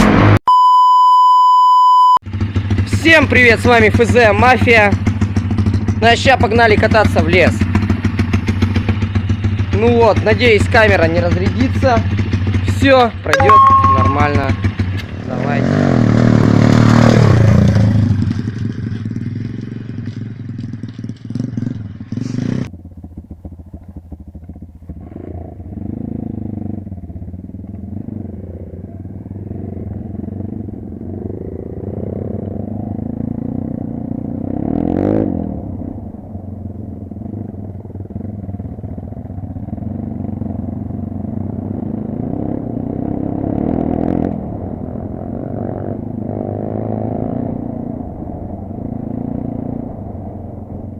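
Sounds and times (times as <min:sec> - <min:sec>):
dirt bike engine revving: 0:13.8 - 0:22.7, 0:29.4 - 0:35.7, 0:39.7 - 0:48.0.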